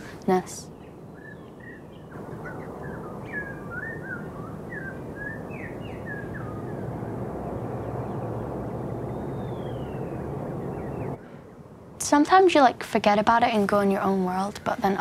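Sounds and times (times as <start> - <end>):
small birds chirping: 0.0 - 11.7
low outdoor rumble: 0.0 - 15.0.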